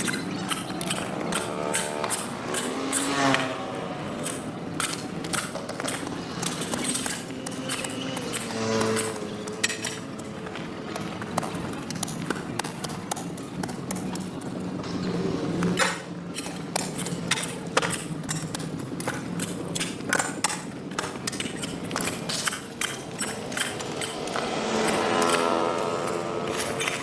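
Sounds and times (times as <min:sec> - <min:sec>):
irregular clicks and knocks: 0:15.6 - 0:27.0.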